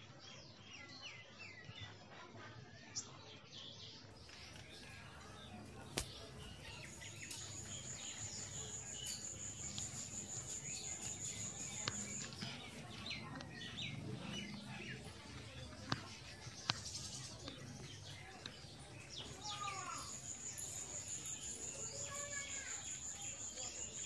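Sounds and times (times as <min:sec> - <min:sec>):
small birds chirping: 0:00.0 - 0:24.0
faint clicks: 0:09.0 - 0:19.3.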